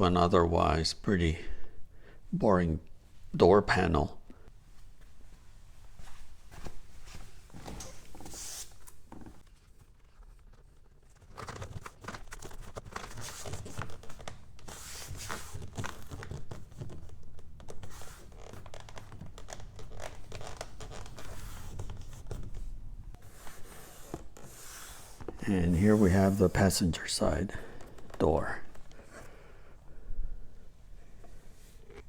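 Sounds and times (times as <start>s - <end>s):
material rustling and crinkling: 4.6s - 29.2s.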